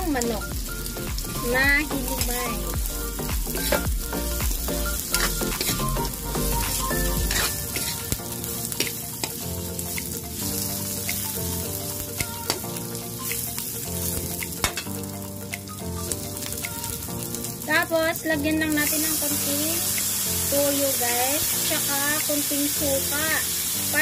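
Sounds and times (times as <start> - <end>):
food sizzling in hot oil: 0.0 - 24.0
metal spatula scraping wok: 3.6 - 3.9, 5.0 - 6.1, 6.8 - 9.9.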